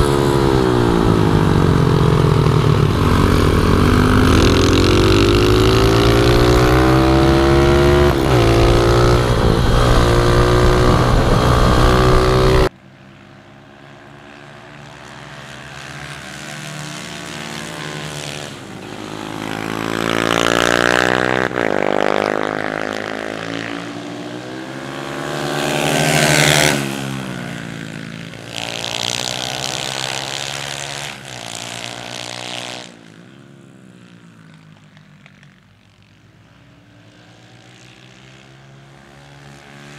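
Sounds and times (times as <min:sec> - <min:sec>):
pit bike engine revving: 0:00.0 - 0:12.7
pit bikes passing: 0:00.0 - 0:39.9.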